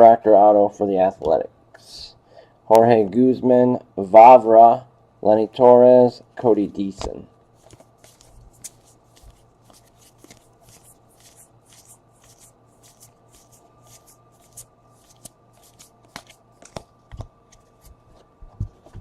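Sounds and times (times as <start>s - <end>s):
faint steady hum: 0.0s - 19.0s
trading cards swishing and flipping: 7.5s - 19.0s.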